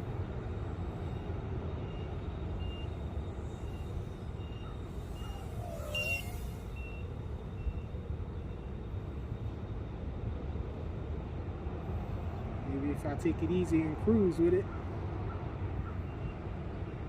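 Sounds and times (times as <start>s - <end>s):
wavering whine: 0.0s - 10.7s
alarm beeping: 1.0s - 8.8s.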